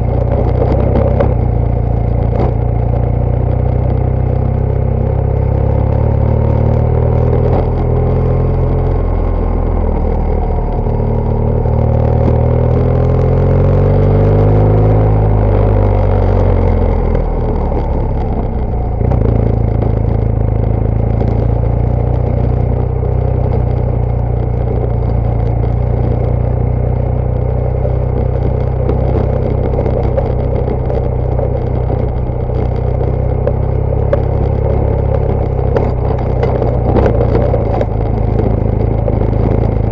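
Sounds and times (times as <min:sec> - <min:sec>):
motorcycle engine running: 0:00.0 - 0:39.9
light clatter: 0:15.9 - 0:39.9.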